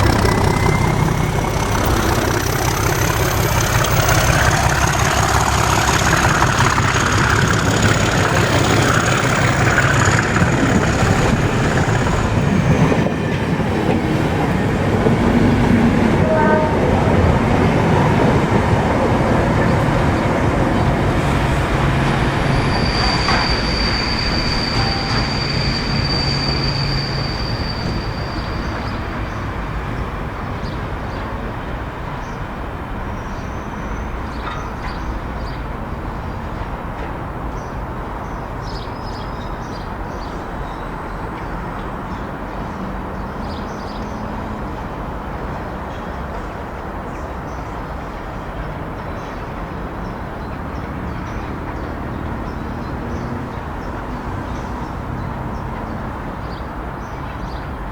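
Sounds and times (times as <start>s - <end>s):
high wheel squeal: 0.0s - 30.8s
diesel train rumbling: 0.0s - 57.9s.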